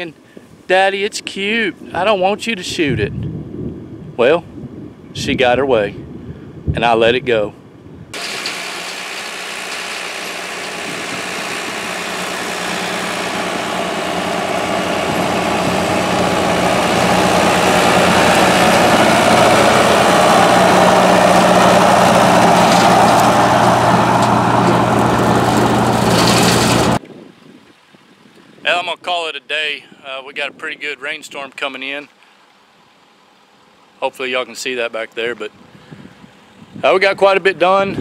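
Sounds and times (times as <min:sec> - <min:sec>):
brush cutter cutting weeds: 0:08.2 - 0:27.0
tractor engine running under load: 0:08.2 - 0:27.0.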